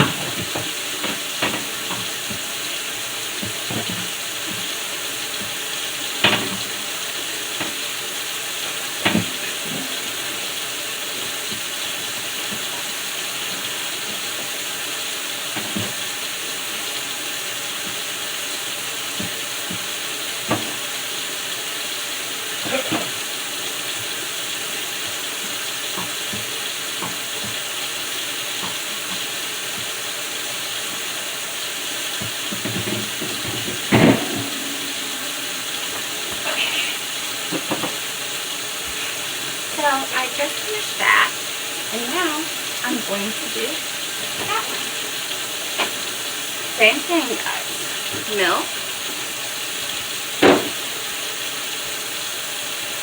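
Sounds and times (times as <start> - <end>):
steady hiss: 29.4 - 53.0
knocks inside refrigerator: 32.2 - 35.7, 50.4 - 50.8.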